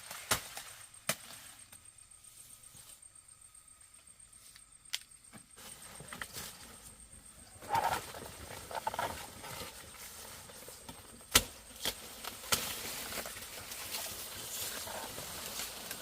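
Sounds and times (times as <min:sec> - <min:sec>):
rustling: 0:05.5 - 0:16.0.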